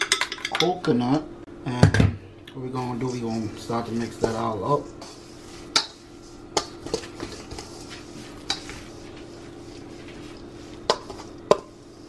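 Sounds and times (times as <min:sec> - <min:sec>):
whisk scraping metal bowl: 0:03.0 - 0:12.0.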